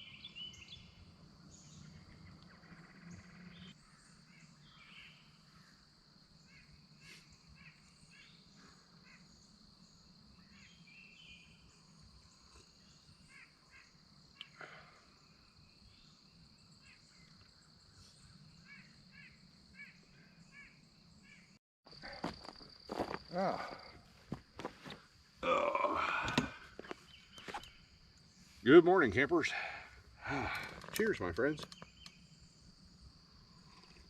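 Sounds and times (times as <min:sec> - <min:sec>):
birds chirping: 0:00.0 - 0:05.5, 0:06.4 - 0:34.0.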